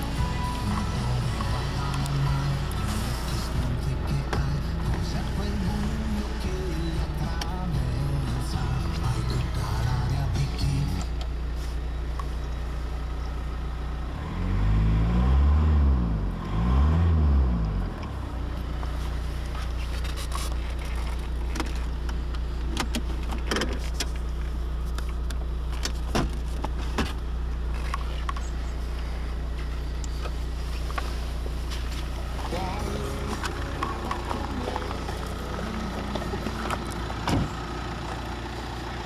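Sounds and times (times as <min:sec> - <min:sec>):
diesel engine idling and revving: 0:00.0 - 0:39.0.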